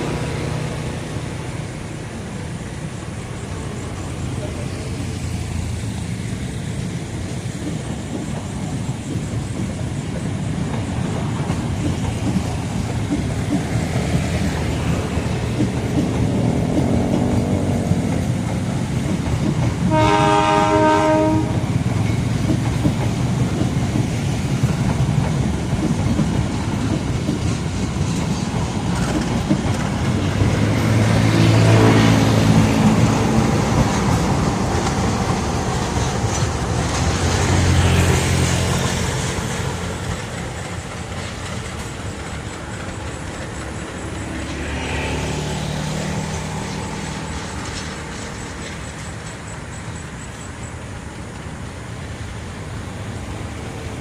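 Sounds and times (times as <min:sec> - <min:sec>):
train rumbling and clattering: 0:00.0 - 0:54.0
locomotive horn: 0:19.9 - 0:21.8.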